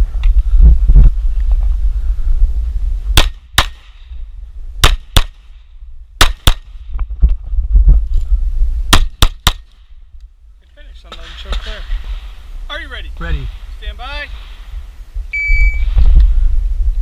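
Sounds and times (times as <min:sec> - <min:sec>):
pistol shots: 0:03.2 - 0:04.0, 0:04.8 - 0:05.5, 0:06.2 - 0:06.8, 0:08.9 - 0:09.8.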